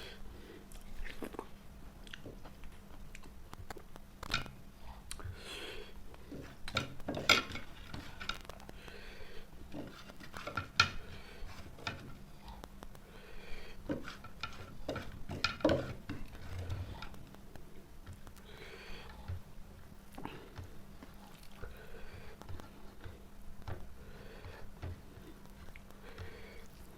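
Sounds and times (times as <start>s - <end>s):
chewing noises: 0.7s - 4.3s, 21.0s - 21.9s.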